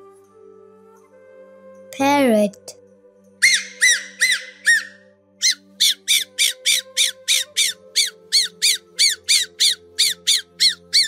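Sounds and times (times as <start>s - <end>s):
parrot squawking: 3.4s - 11.0s.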